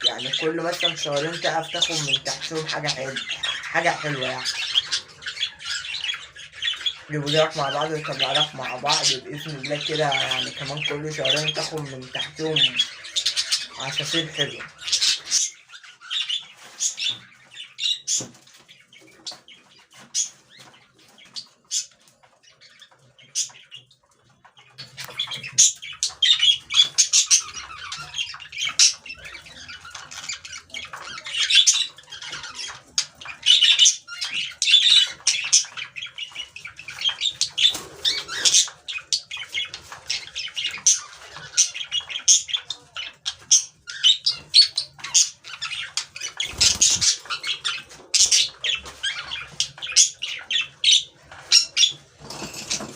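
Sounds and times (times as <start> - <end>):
birds chirping and squawking: 0.0 - 52.9.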